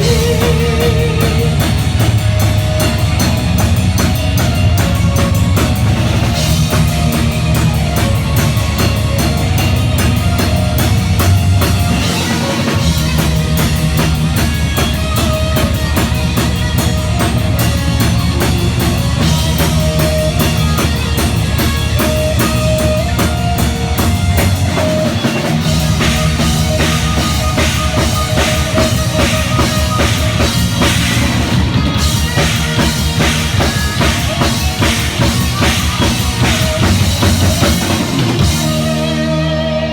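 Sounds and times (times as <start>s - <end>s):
bass guitar: 0.0s - 39.9s
guitar: 0.0s - 39.9s
rapid bass drum and cymbals: 0.0s - 39.9s.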